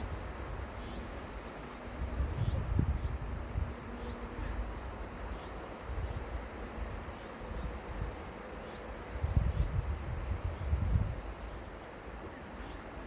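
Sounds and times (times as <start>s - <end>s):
wind on microphone: 2.0s - 4.7s, 9.2s - 11.5s.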